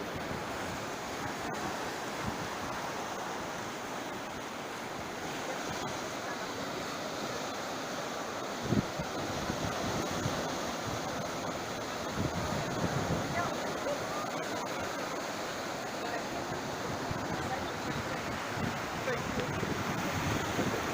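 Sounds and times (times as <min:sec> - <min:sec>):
sea surf on the shore: 0:00.0 - 0:20.9
wind on microphone: 0:08.6 - 0:14.0, 0:16.4 - 0:20.9.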